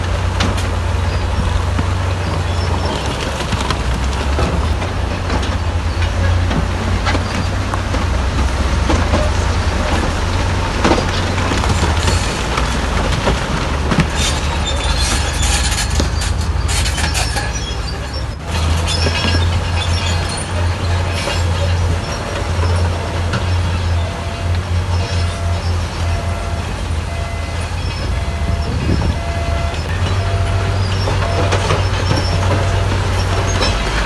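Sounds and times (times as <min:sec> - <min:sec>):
diesel engine droning: 0:00.0 - 0:34.0
steel tracks clanking: 0:00.0 - 0:34.0
high squeaks: 0:14.1 - 0:34.0.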